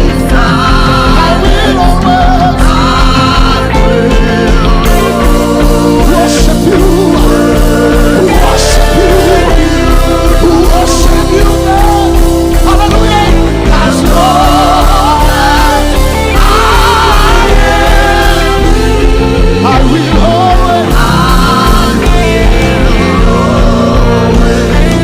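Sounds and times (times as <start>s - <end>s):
gospel worship band music: 0.0s - 25.0s.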